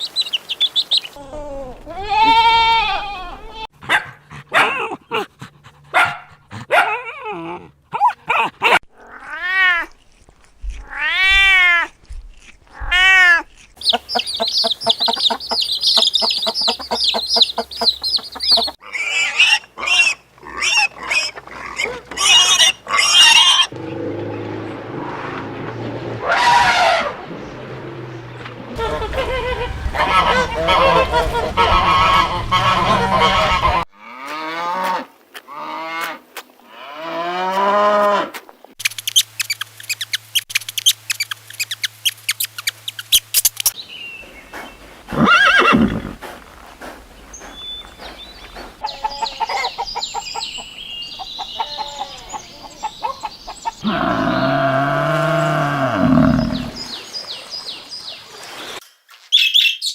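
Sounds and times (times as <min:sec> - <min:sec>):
animal calls: 0:12.7 - 0:24.0, 0:51.3 - 0:56.8
long loud low animal call: 0:53.8 - 0:56.8.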